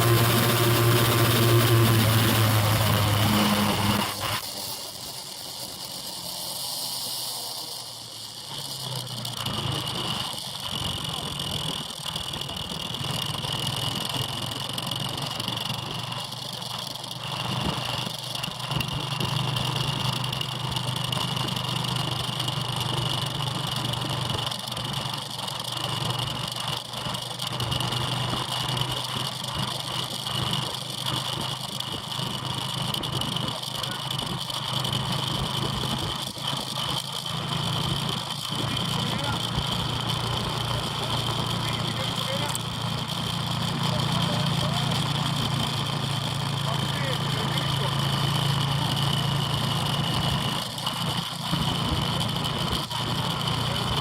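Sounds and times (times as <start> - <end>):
steady high whine: 0.0 - 13.4, 27.4 - 54.0
motorbike engine running: 0.0 - 54.0.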